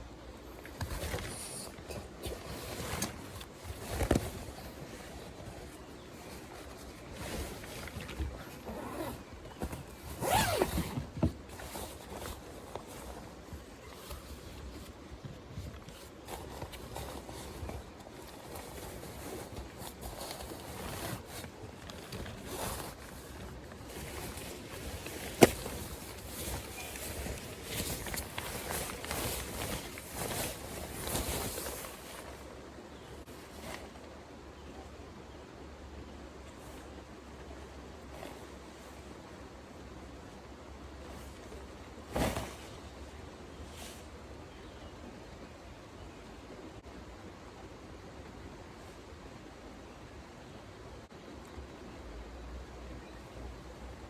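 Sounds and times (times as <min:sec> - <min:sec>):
handling noises: 0:00.0 - 0:34.2, 0:41.0 - 0:43.0
gear rustling and scraping: 0:00.6 - 0:32.5.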